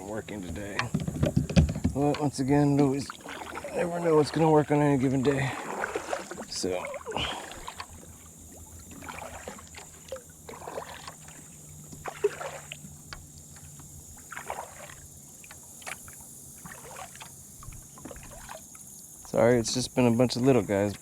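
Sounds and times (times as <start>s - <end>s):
water lapping and splashing: 0.0s - 21.0s
light sharp knocks: 0.4s - 2.9s.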